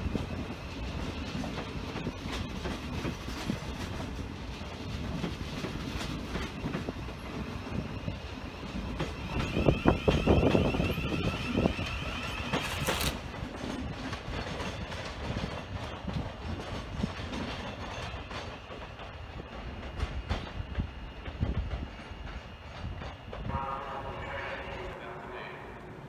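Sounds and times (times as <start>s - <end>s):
train rumbling on rails: 0.0s - 26.0s
wheels clicking over rail joints: 8.7s - 23.5s.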